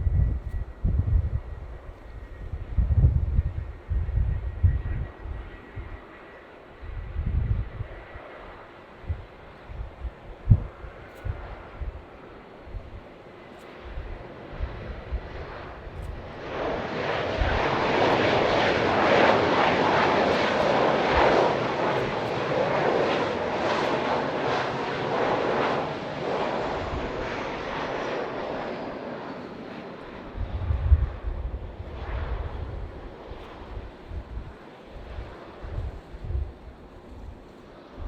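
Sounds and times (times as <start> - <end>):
wind buffeting microphone: 0.0 - 6.1, 6.8 - 13.2, 13.8 - 28.8, 30.1 - 38.0
jet engines passing overhead: 0.0 - 38.0.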